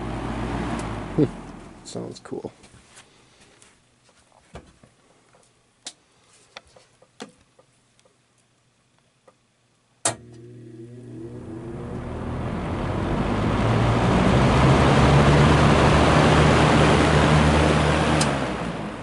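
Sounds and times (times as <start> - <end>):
fan motor humming: 0.0 - 2.5, 10.1 - 19.0
fan switch click: 10.0 - 10.4
rush of air from fan: 12.2 - 19.0.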